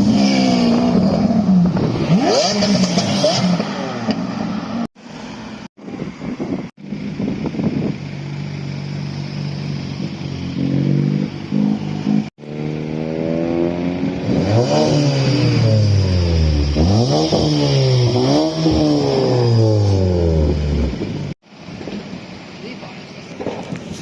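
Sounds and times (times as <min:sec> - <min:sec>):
car engines revving: 0:00.0 - 0:23.4
car engines idling: 0:03.6 - 0:12.9, 0:17.7 - 0:24.0.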